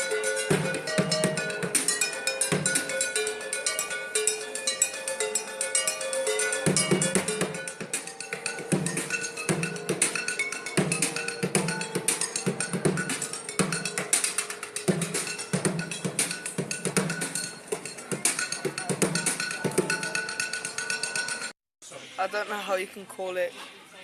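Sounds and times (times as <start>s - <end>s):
drumming on junk: 0.0s - 3.0s, 6.7s - 20.1s.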